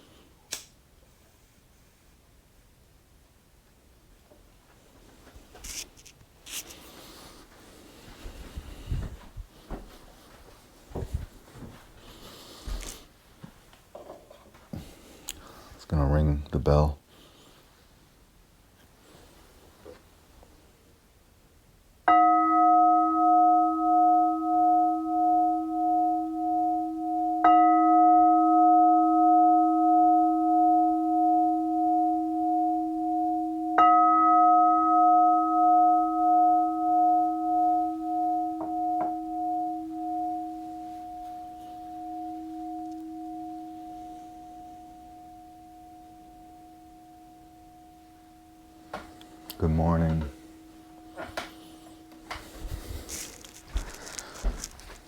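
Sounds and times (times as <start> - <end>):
bell ringing with wavering tone: 22.1 - 54.7.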